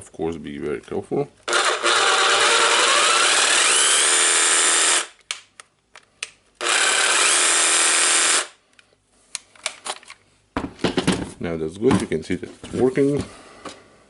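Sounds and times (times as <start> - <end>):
jigsaw motor running: 1.5 - 5.1, 6.6 - 8.5.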